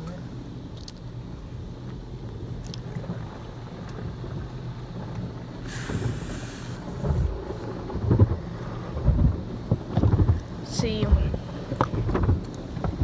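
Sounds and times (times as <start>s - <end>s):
car wash rumble: 0.0s - 13.0s
water jets spraying on car: 0.0s - 13.0s.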